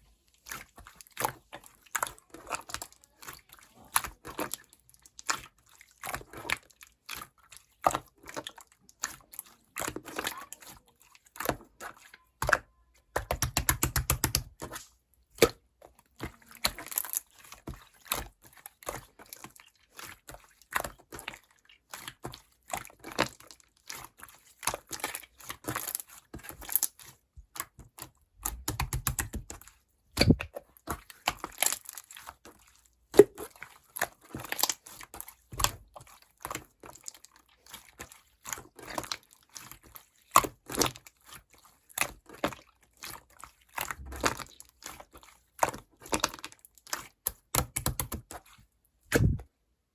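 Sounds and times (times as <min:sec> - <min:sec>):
slime squished by hand: 0:00.3 - 0:49.5.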